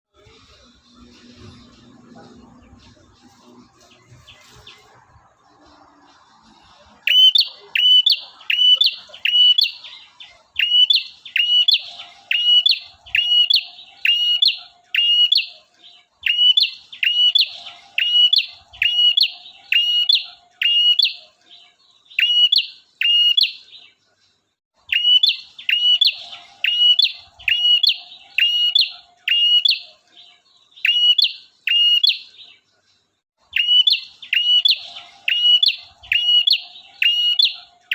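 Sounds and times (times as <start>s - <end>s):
bird singing sharp high notes: 7.0s - 15.6s, 16.2s - 23.8s, 24.9s - 32.4s, 33.6s - 37.9s.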